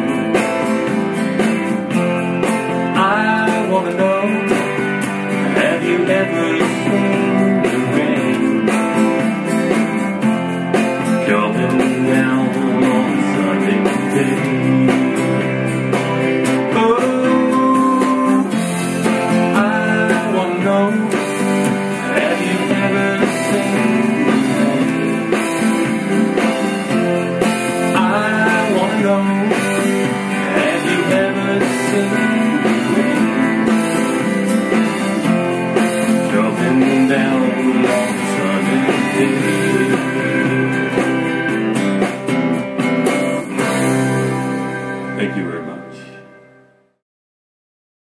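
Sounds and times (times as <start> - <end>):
rock guitar lead with band: 0.0 - 46.8.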